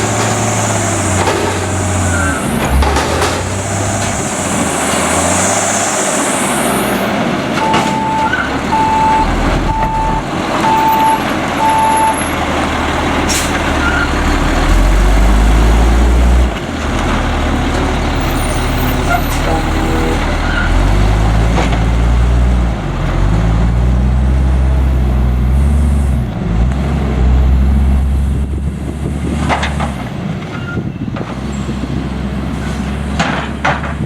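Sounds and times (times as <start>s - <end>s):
garbage truck engine running: 0.0s - 34.0s
reversing beeps: 7.6s - 12.2s.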